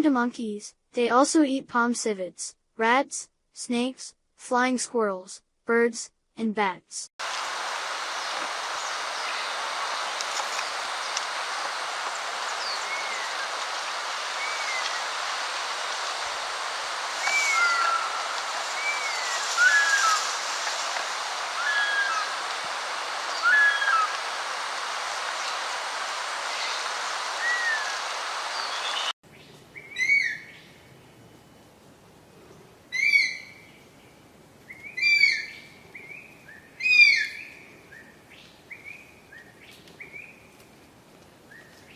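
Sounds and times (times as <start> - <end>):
outdoor noise hiss: 7.2 - 41.9
downward-sweeping bird calls: 8.1 - 29.1, 34.7 - 40.4
whistled bird calls: 12.5 - 13.6, 14.3 - 15.1, 17.2 - 20.5, 21.5 - 22.4, 23.3 - 24.2, 26.5 - 29.1, 34.8 - 38.1.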